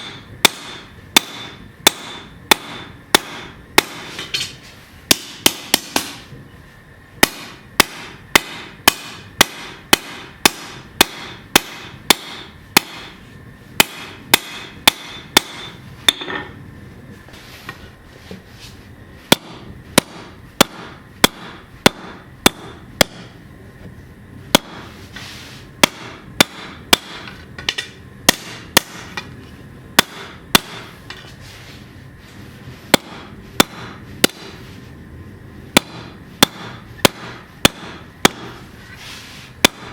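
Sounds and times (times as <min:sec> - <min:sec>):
hammer striking steel on anvil: 0:00.0 - 0:06.3, 0:07.2 - 0:13.2, 0:13.8 - 0:16.6, 0:19.3 - 0:23.4, 0:24.5 - 0:24.9, 0:25.8 - 0:29.3, 0:30.0 - 0:31.2, 0:32.9 - 0:34.6, 0:35.8 - 0:38.6, 0:39.6 - 0:39.9.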